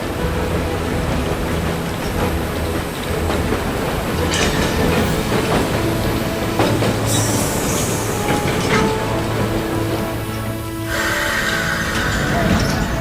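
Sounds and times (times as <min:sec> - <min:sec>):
train wheels clattering: 0:00.0 - 0:13.0
burst of hiss: 0:10.3 - 0:13.0.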